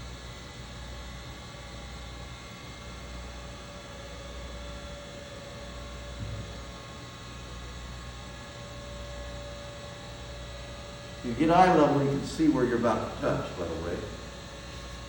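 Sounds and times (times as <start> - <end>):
grinder wheel humming: 2.9 - 15.0
short low thump: 6.2 - 6.6.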